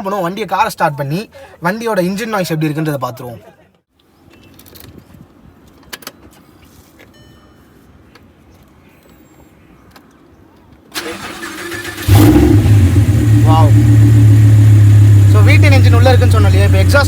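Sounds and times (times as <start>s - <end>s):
car starter cranking: 10.9s - 17.0s.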